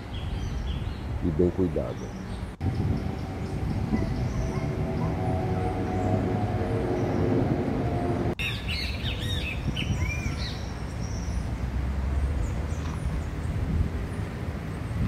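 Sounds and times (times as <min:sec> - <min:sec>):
birds chirping: 0:00.0 - 0:15.0
low outdoor rumble: 0:01.1 - 0:08.4.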